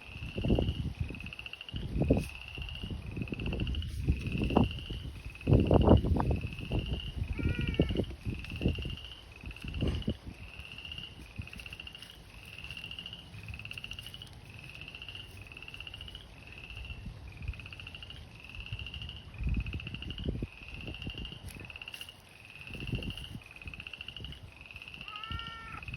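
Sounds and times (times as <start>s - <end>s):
frogs trilling in chorus: 0.0s - 25.9s.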